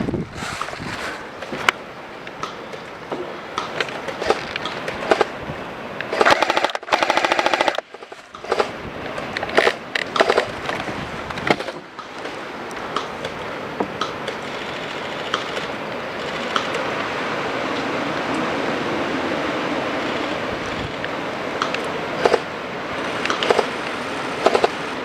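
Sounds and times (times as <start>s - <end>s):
airsoft gun firing: 6.2s - 7.8s.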